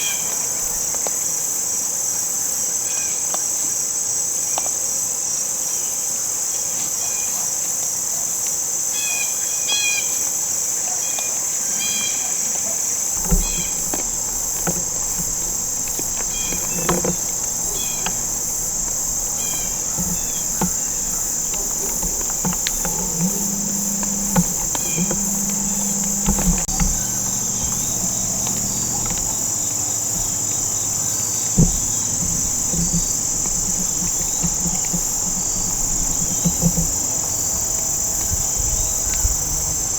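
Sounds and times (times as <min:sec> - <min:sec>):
crickets chorus: 0:00.0 - 0:07.7, 0:13.0 - 0:39.9
soft low thumps: 0:13.2 - 0:39.9.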